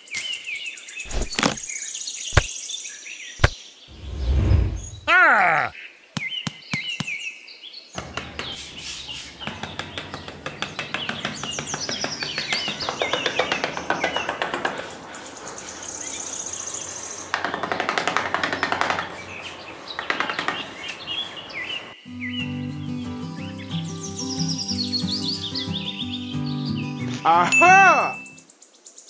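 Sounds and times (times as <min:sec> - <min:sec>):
birds chirping: 0:00.0 - 0:29.0
trowel scraping sand: 0:08.4 - 0:09.5, 0:14.2 - 0:16.9.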